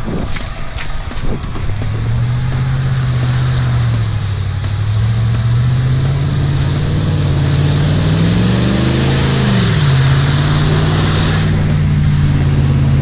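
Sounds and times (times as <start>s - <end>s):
hiss: 0.0s - 13.0s
pickup truck engine revving: 0.0s - 13.0s.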